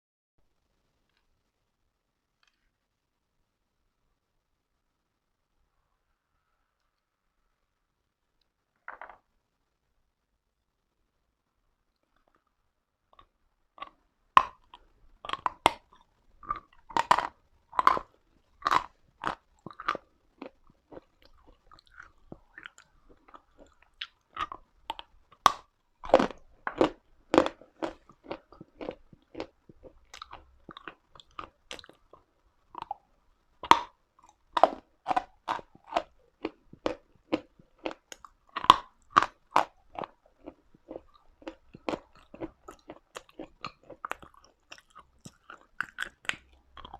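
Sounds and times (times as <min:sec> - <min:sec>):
chalk crunching being chewed: 0:13.2 - 0:33.0, 0:33.6 - 0:46.9.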